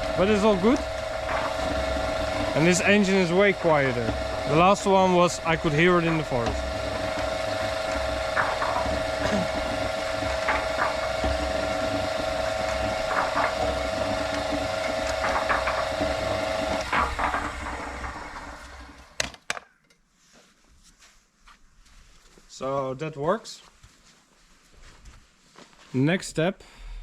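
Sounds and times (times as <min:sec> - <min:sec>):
concrete mixer motor humming: 0:00.0 - 0:19.2
turning drum knocking: 0:00.0 - 0:19.2.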